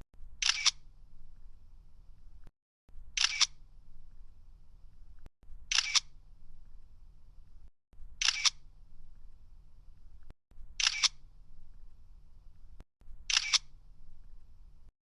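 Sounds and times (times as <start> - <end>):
camera shutter clicking: 0.4 - 0.8, 3.2 - 3.6, 5.7 - 6.1, 8.2 - 8.6, 10.8 - 11.2, 13.3 - 13.7.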